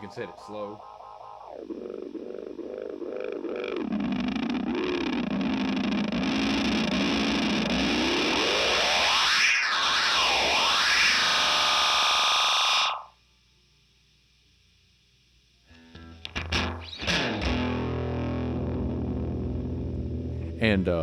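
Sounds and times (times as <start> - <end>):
warbling delay feedback tone: 0.0 - 6.0.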